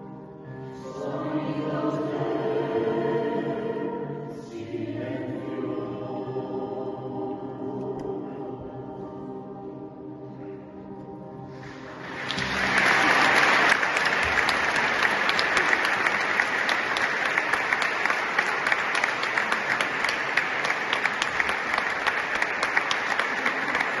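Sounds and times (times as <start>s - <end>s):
choir singing held chord: 0.4s - 19.3s
audience clapping: 11.6s - 24.0s.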